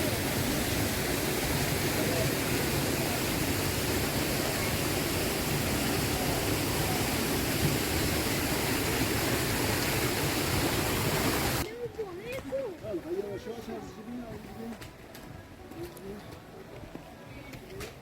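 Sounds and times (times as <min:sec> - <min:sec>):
flowing water rushing: 0:00.0 - 0:18.0.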